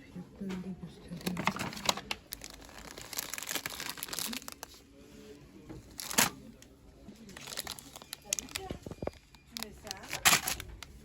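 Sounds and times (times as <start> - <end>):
plastic crinkling and rustling: 1.1 - 11.0
sharp plastic crackle: 1.2 - 4.8, 5.9 - 6.4, 7.2 - 11.0.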